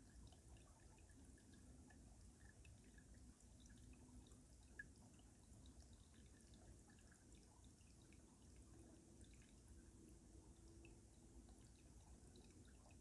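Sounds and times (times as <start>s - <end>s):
water trickling under ice: 0.0s - 13.0s.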